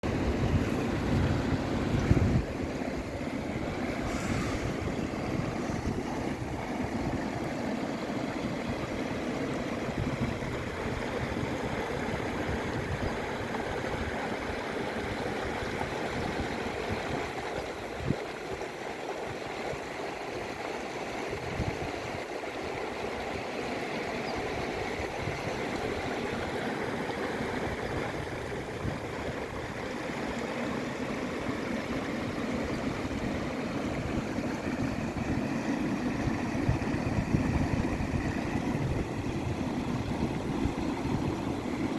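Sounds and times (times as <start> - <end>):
river water rushing: 0.0 - 41.9
gusty low rumble: 3.5 - 6.6.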